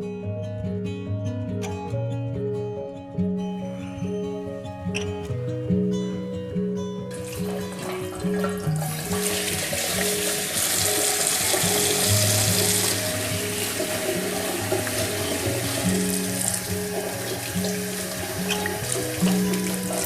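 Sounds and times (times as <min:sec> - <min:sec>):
soft background music: 0:00.0 - 0:20.0
water running: 0:07.1 - 0:20.0.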